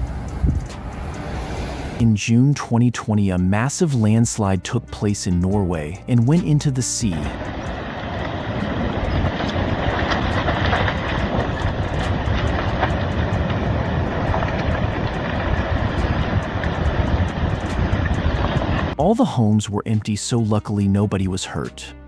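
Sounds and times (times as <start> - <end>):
landslide low rumbling roar: 7.0 - 19.8.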